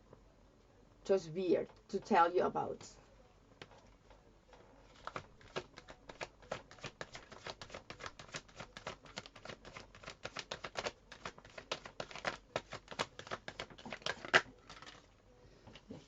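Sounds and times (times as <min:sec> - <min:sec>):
cards being shuffled: 0:04.9 - 0:15.1.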